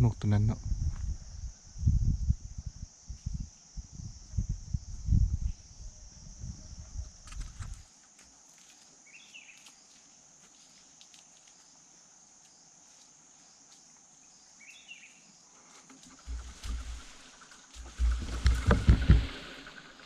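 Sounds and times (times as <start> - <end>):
high insect chorus: 0.0 - 20.0
rustling: 15.7 - 19.9
low thumps: 16.3 - 19.8.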